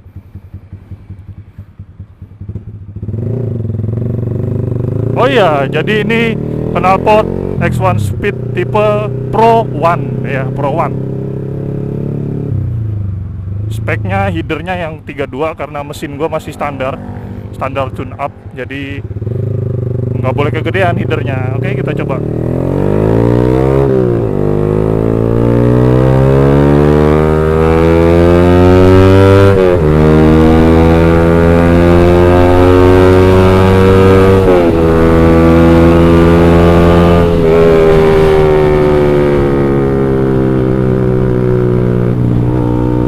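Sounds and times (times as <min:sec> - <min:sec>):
motorcycle accelerating through gears: 0:00.0 - 0:14.4, 0:16.0 - 0:43.0.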